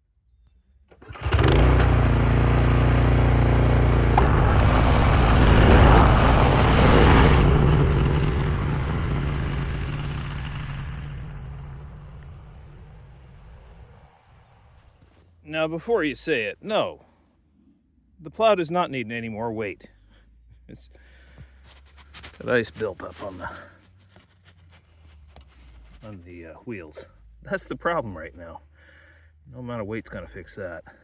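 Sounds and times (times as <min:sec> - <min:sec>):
snowblower engine running: 0:01.0 - 0:15.0.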